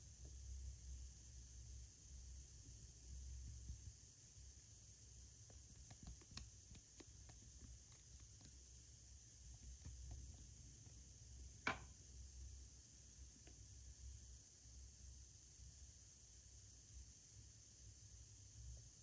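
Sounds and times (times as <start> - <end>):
small objects clicking and tapping: 5.4 - 8.7.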